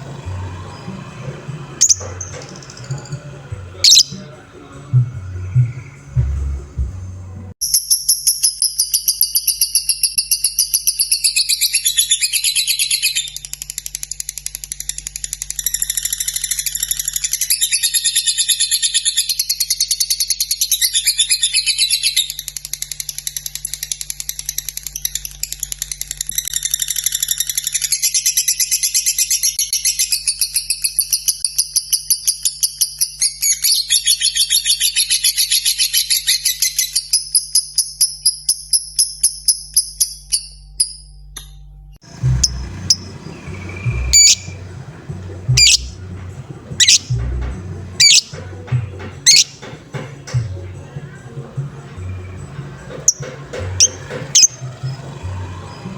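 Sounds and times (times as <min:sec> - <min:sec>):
lovebird chattering trill: 0:01.8 - 0:03.2, 0:03.8 - 0:04.3, 0:42.4 - 0:48.5, 0:49.2 - 0:49.7, 0:53.8 - 0:54.6.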